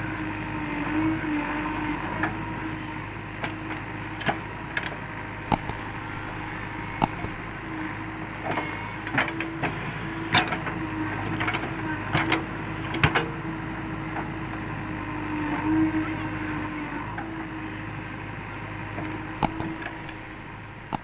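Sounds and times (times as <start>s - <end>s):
diesel engine running: 0.0s - 21.0s
sharp knocks and clicks: 5.5s - 7.6s, 19.4s - 21.0s.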